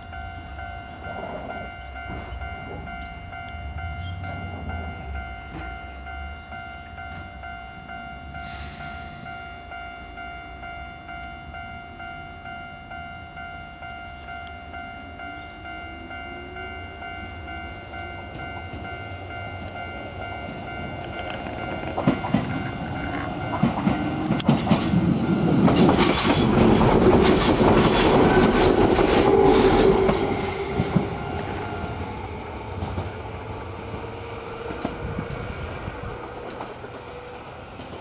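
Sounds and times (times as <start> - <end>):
electric train passing: 0.0 - 38.0
wheels clicking over rail joints: 19.5 - 38.0.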